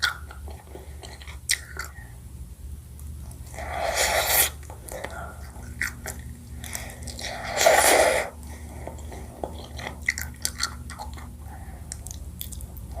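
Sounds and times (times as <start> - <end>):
chewing honeycomb: 3.0 - 13.0.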